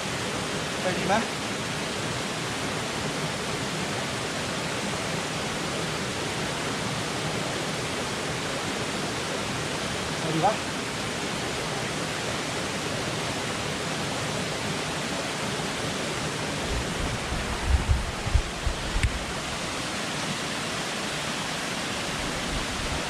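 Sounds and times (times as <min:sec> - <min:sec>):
waterfall rushing: 0:00.0 - 0:23.0
low thumps: 0:16.7 - 0:19.2.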